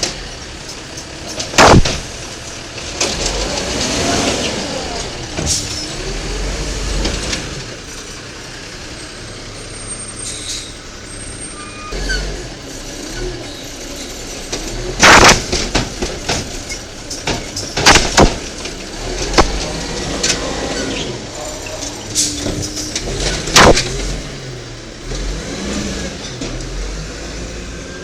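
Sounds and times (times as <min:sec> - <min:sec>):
garbage truck diesel engine running: 0:00.0 - 0:28.0
sharp bangs: 0:01.4 - 0:02.4, 0:15.0 - 0:16.5, 0:17.2 - 0:20.4, 0:22.2 - 0:24.3.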